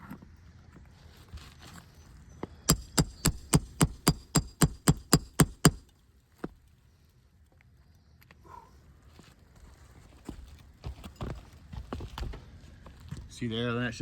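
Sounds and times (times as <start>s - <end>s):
hammer tapping on asphalt shingle: 2.7s - 6.6s.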